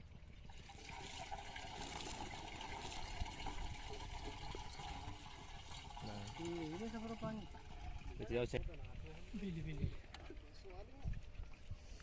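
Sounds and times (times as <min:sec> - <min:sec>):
water pouring and splashing: 0:00.0 - 0:12.0.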